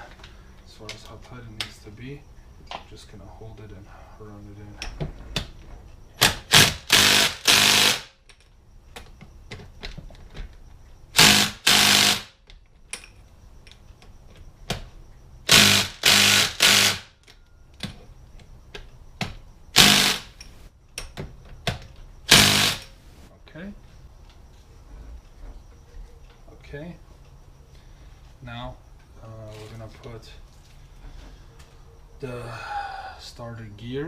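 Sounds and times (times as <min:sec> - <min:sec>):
impact gun hammering: 0:11.2 - 0:12.3, 0:22.3 - 0:22.8.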